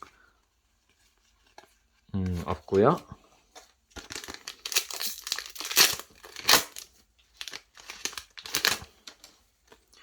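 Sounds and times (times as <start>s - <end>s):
plastic wrapper crinkling and tearing: 3.9s - 9.3s.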